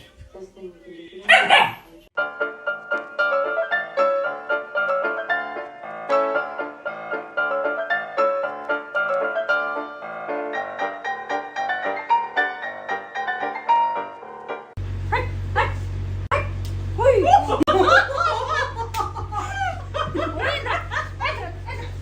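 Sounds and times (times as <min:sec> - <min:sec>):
piano music quick notes: 0:02.2 - 0:14.8.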